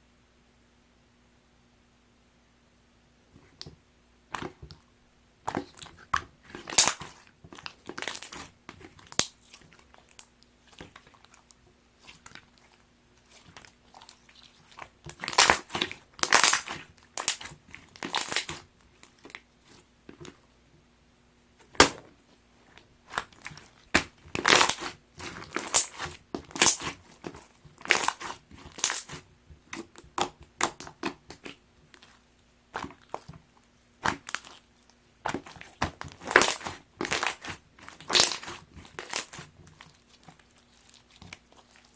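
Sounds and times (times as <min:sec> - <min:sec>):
slime squishing and popping: 0:05.5 - 0:19.5, 0:21.7 - 0:22.1, 0:23.0 - 0:41.9.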